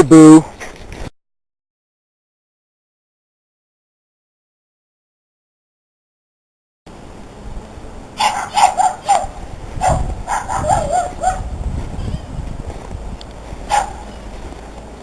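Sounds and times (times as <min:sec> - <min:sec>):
dog yapping: 0:08.2 - 0:11.5, 0:13.7 - 0:14.2.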